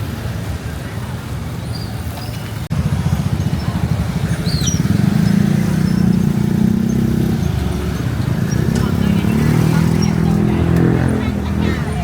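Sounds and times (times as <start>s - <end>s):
street traffic: 0.0s - 12.0s
motorcycle engine running: 2.7s - 12.0s.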